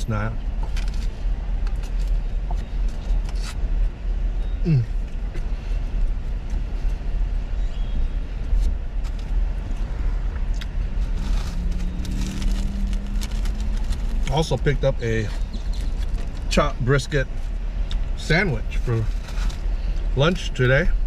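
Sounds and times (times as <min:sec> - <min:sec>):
vehicle rumble: 0:00.0 - 0:21.0.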